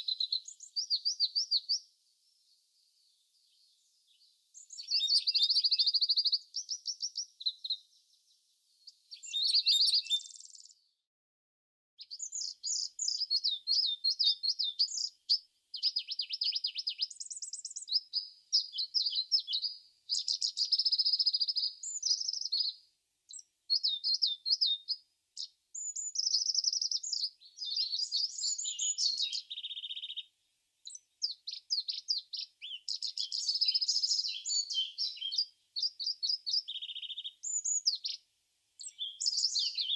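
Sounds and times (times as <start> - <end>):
songbirds singing: 0.0 - 11.0, 12.0 - 39.9.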